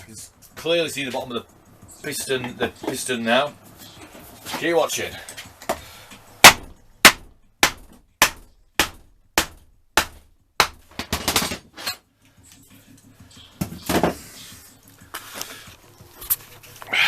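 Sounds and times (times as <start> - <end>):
hammer striking wooden block: 6.4 - 11.4.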